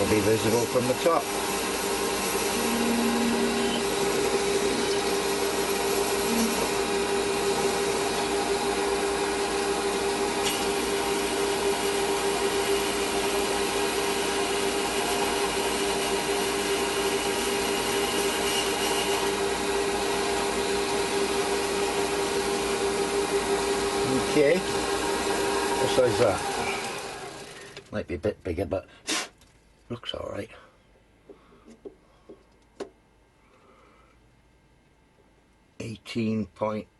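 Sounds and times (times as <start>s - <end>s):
metal lathe humming: 0.0s - 27.6s.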